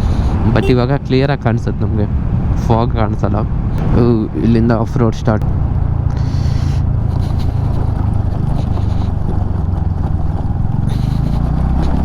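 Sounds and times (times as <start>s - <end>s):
motorcycle engine running: 5.4s - 12.0s.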